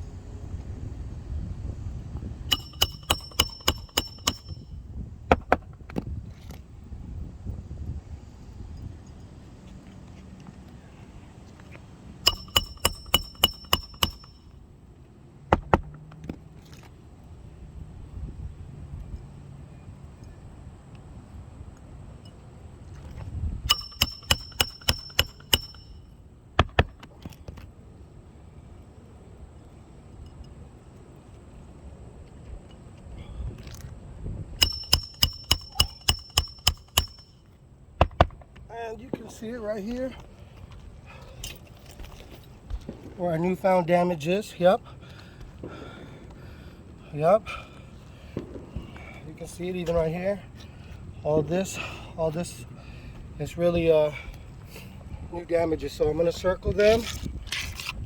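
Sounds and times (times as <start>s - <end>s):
hammer striking roofing nails: 2.5s - 4.6s, 12.3s - 14.5s, 23.7s - 26.0s, 34.6s - 37.3s.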